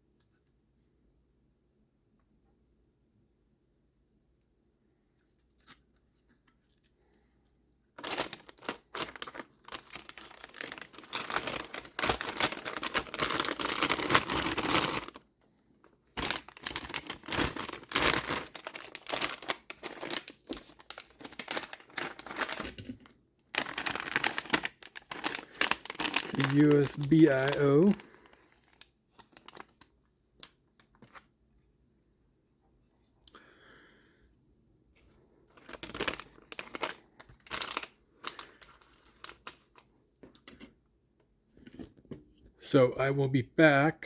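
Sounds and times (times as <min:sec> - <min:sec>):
packaging crinkling and tearing: 0:08.0 - 0:15.3, 0:16.1 - 0:31.3, 0:35.5 - 0:39.8.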